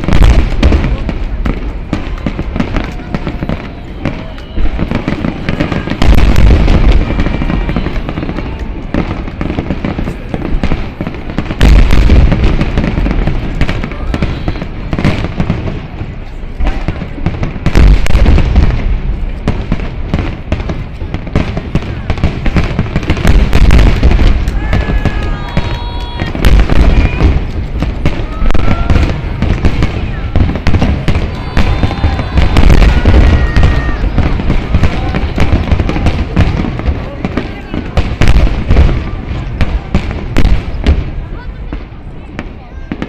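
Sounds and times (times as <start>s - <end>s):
crackling firework bursts: 0.0s - 43.0s
heavy low firework booms: 0.0s - 43.0s.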